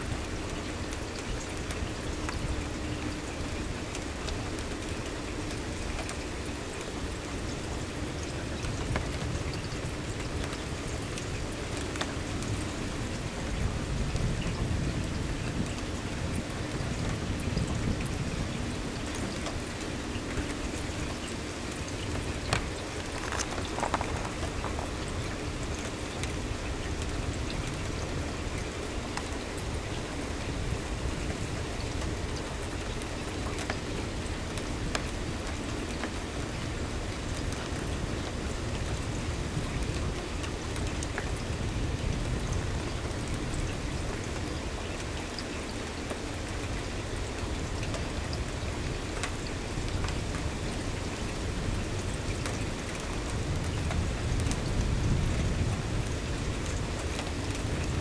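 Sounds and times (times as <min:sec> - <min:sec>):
rain hissing on trees and lawn: 0:00.0 - 0:58.0
sharp ticks of raindrops: 0:00.0 - 0:58.0.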